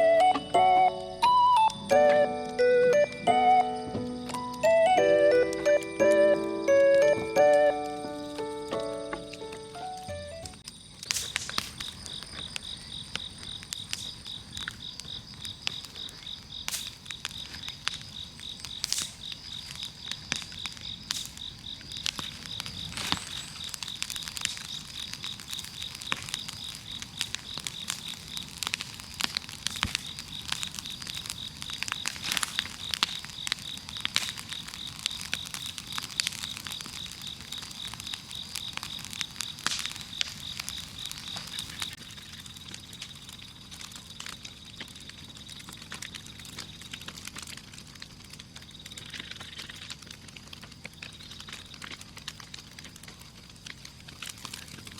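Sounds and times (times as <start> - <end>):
insect trilling: 0.0 - 42.6, 48.7 - 49.9
bonfire crackling and popping: 0.0 - 54.9.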